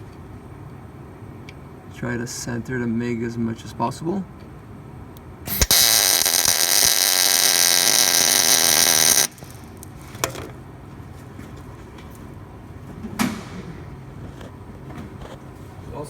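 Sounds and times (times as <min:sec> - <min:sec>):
short clicks: 0:05.5 - 0:09.9
welder arc buzzing and crackling: 0:05.5 - 0:10.4.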